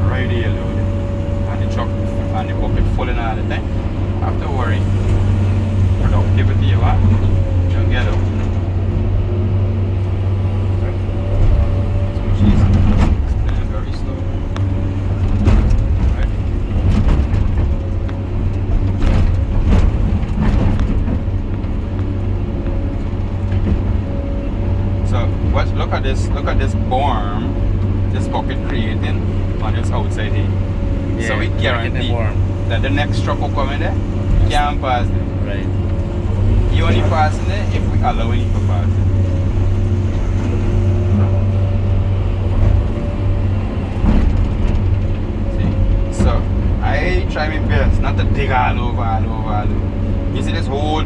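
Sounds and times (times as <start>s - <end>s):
excavator diesel engine: 0.0s - 51.0s
hydraulic whine: 0.0s - 51.0s.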